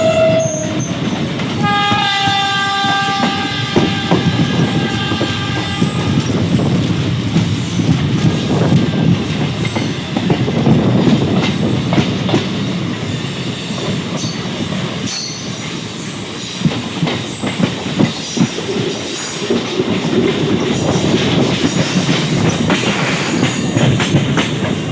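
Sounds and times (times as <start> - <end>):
train horn: 0.0 - 6.6, 8.4 - 9.3
high wheel squeals: 0.0 - 10.1
train wheels clattering over joints: 0.0 - 24.9.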